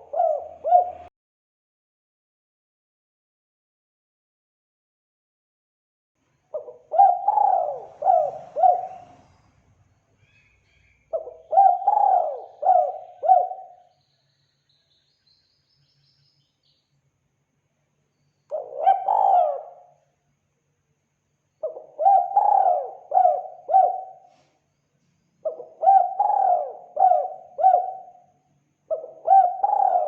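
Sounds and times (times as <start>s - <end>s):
dove cooing: 0.0s - 1.1s, 6.5s - 9.4s, 11.1s - 13.9s, 18.5s - 20.0s, 21.6s - 24.4s, 25.4s - 28.2s, 28.9s - 30.0s.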